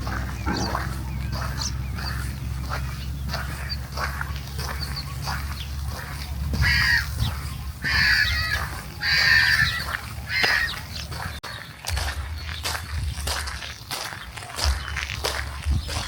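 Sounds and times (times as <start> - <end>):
low rumble: 0.0 - 11.4
bird calling harshly: 0.0 - 11.7.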